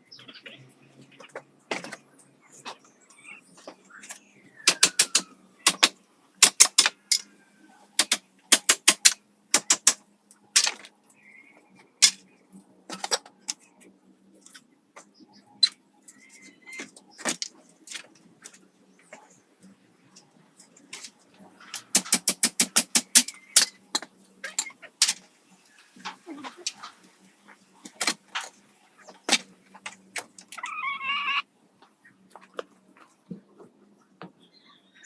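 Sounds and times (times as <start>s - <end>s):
sharp clicks and knocks: 4.1s - 7.3s, 8.0s - 10.0s, 21.8s - 25.2s.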